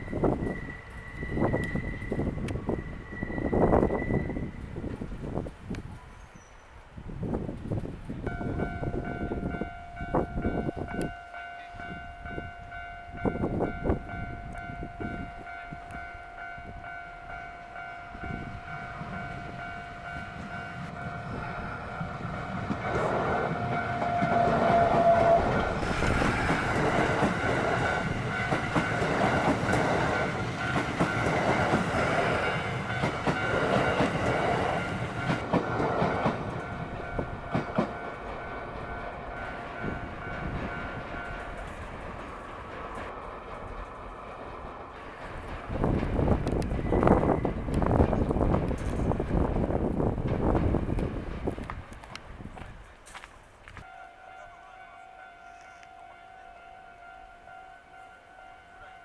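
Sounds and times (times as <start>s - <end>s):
level-crossing warning bell: 0.0s - 5.0s, 8.2s - 43.1s, 46.2s - 49.5s, 53.8s - 59.0s
train wheels clattering: 13.2s - 53.9s.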